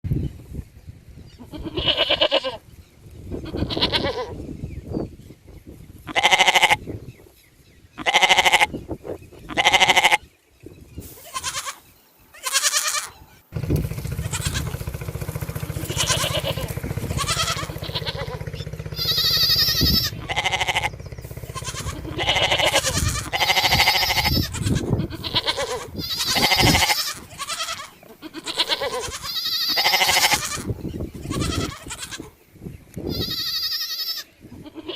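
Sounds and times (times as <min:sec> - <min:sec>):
sheep and goats bleating: 0:01.4 - 0:02.6, 0:03.3 - 0:04.4, 0:06.1 - 0:06.9, 0:08.0 - 0:08.8, 0:09.5 - 0:10.3, 0:11.2 - 0:13.3, 0:13.9 - 0:32.4, 0:33.0 - 0:34.9
steady low hum: 0:13.5 - 0:26.6.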